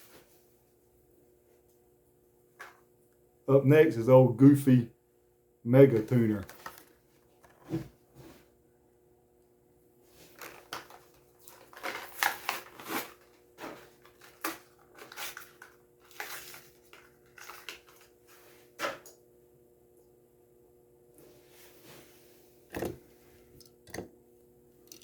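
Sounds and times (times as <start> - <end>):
plastic and cardboard crackling: 6.0 - 7.9, 10.2 - 18.1.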